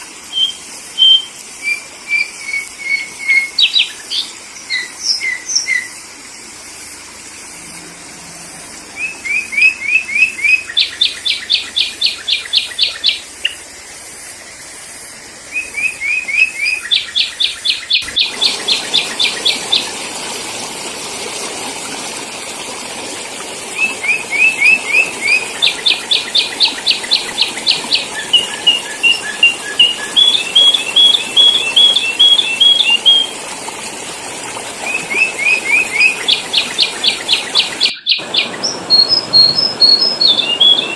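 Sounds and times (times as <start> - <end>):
steady hiss: 0.0 - 37.9
bulbul song: 0.3 - 6.0, 8.9 - 13.6, 15.5 - 20.0, 23.7 - 33.5, 34.8 - 40.9.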